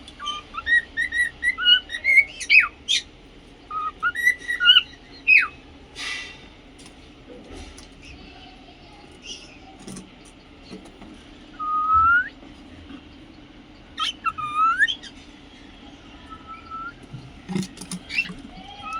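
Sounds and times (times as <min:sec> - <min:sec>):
cockatiel whistling: 0:00.2 - 0:03.1, 0:03.7 - 0:05.6, 0:11.6 - 0:12.4, 0:14.0 - 0:15.1, 0:16.3 - 0:17.0.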